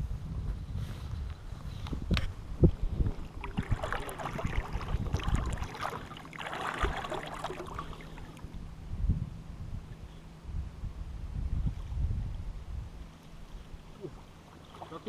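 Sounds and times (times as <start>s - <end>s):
water splashing and sloshing: 2.6s - 8.7s, 13.6s - 15.0s.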